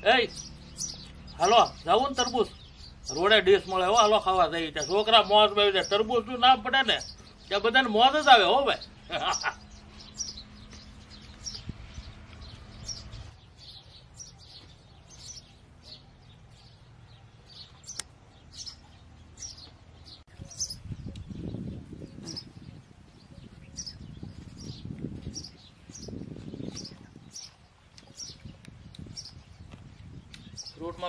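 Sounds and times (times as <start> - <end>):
small birds chirping: 0.0 - 31.0
low muffled rumbling: 20.3 - 27.5.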